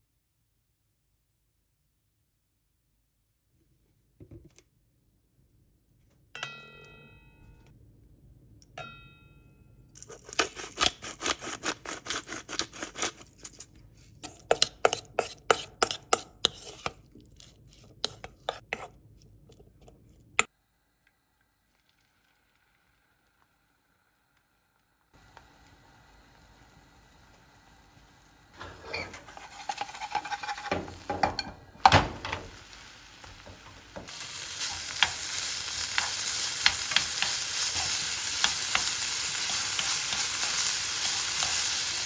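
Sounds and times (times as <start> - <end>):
dishware clinking: 28.6 - 32.6.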